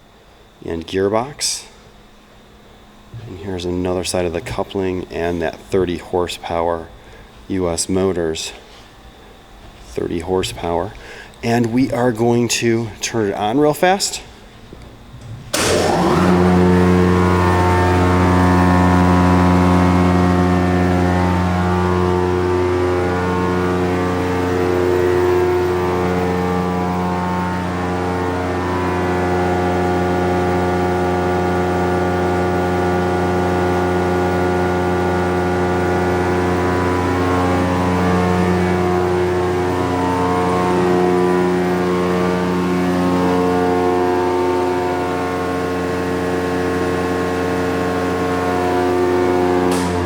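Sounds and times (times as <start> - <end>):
scrap grinder motor humming: 14.6 - 50.0.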